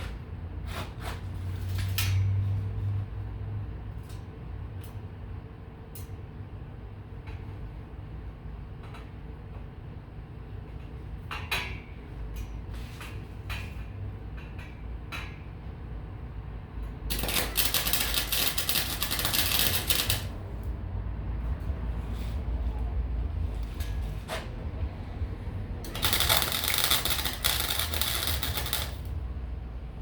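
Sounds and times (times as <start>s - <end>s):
welding arc crackling: 17.1s - 20.7s, 25.8s - 29.4s.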